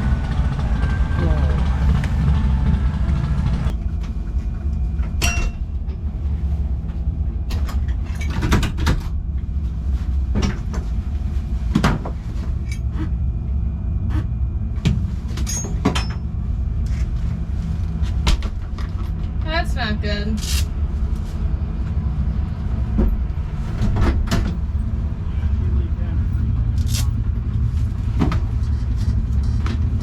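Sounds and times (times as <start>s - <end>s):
loud noisy sound: 0.0s - 3.8s
vehicle engine rumble: 0.0s - 30.0s.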